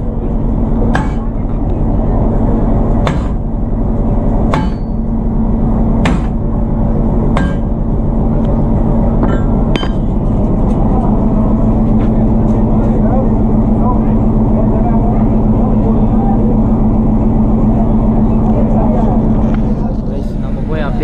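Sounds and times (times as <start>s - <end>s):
locomotive engine humming: 0.0s - 21.0s
sharp metallic clanks: 4.5s - 5.1s, 7.3s - 7.8s, 9.2s - 10.4s.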